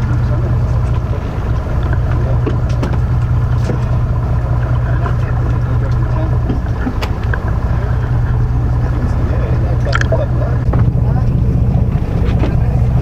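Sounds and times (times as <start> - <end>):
boat engine droning: 0.0 - 13.0
faint clicks: 0.6 - 8.4.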